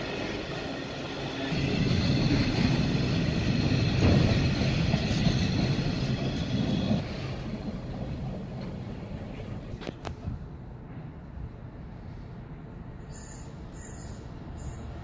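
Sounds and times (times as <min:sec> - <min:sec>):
train wheels on rails: 0:00.0 - 0:11.4.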